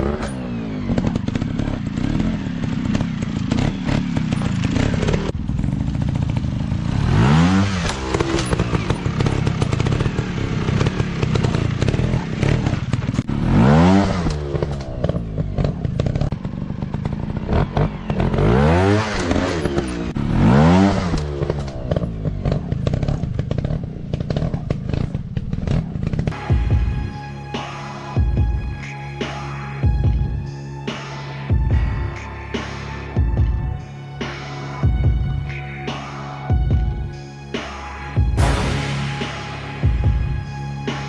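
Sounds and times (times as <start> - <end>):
dirt bike engines revving: 0.0 - 26.6.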